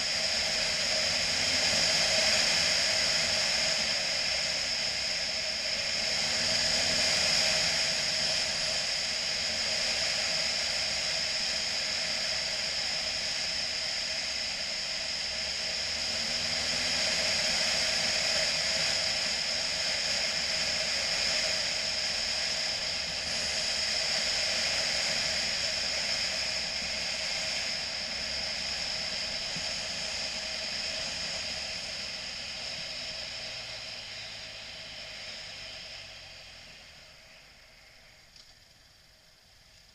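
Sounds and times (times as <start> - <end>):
wind and road noise on motorcycle: 0.0 - 39.9.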